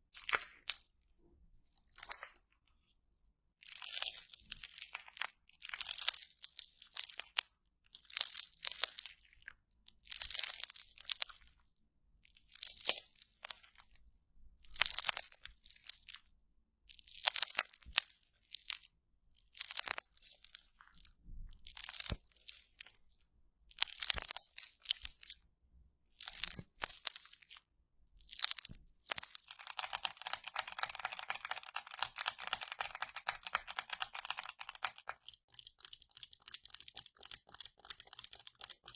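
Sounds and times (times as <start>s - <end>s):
crunchy slime crackling: 19.5s - 23.0s, 26.2s - 27.6s, 28.3s - 38.9s.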